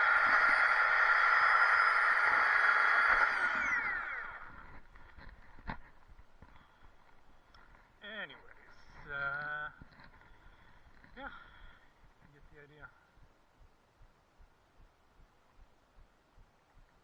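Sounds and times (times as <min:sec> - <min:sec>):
chainsaw whining: 0:00.0 - 0:05.4.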